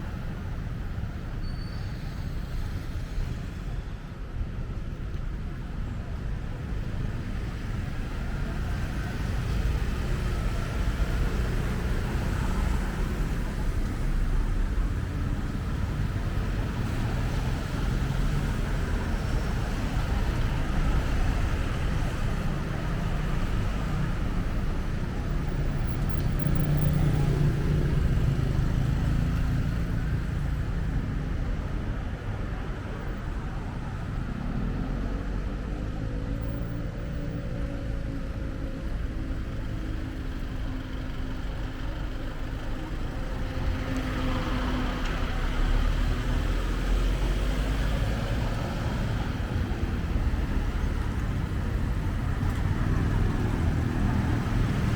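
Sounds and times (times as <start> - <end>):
vehicles passing: 0.0 - 54.9.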